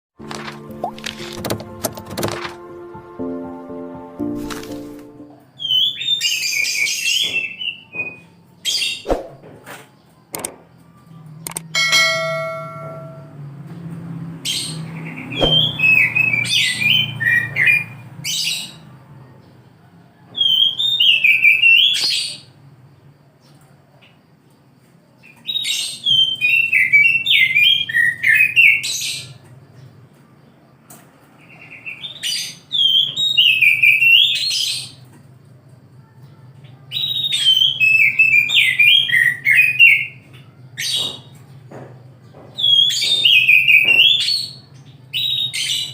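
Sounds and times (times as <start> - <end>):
bird singing whistled phrases: 5.6 - 9.1, 15.4 - 17.9, 20.4 - 22.3, 36.9 - 40.2, 42.6 - 45.9.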